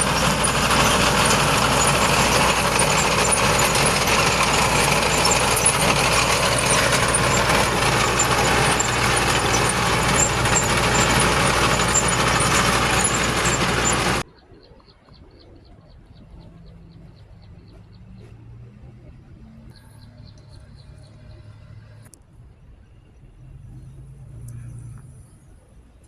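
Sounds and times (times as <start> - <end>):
faint regular ticking: 0.0 - 14.2
heavy diesel machinery running: 0.0 - 14.2.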